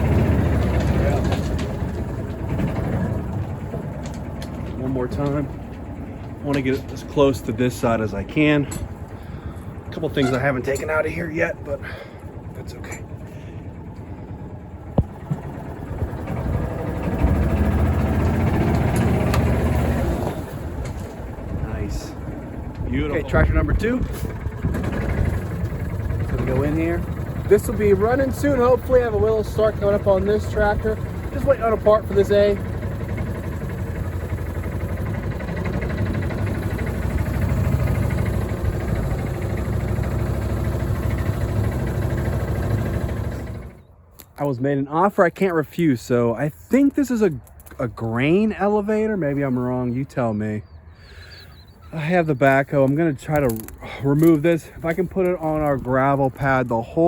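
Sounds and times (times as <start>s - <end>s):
machine engine revving: 0.0s - 8.0s, 9.0s - 43.8s.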